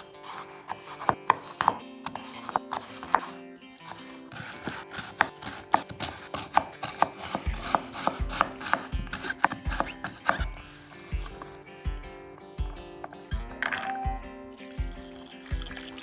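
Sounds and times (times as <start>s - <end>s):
knife chopping on cutting board: 0.2s - 3.3s, 3.9s - 11.6s
background music with low beat: 7.0s - 16.0s.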